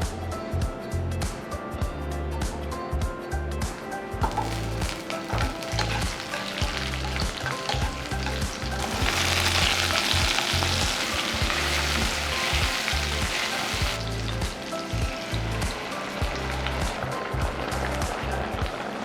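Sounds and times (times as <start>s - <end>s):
food sizzling in a pan: 3.7s - 19.0s
spatula clicking and scraping: 4.2s - 15.6s.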